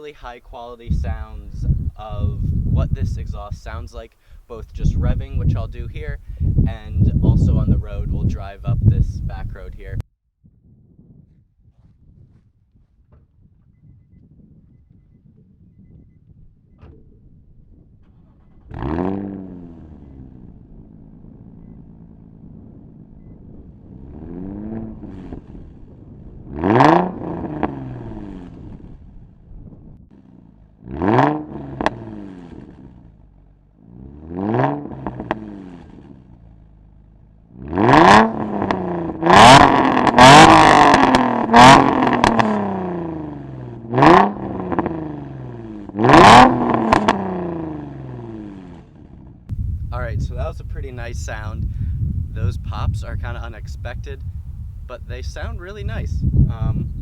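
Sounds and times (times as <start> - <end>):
exhaust pops: 15.4 - 33.6, 34.2 - 42.9, 45.8 - 47.5, 48.5 - 57.0
car engine revving: 16.8 - 57.0.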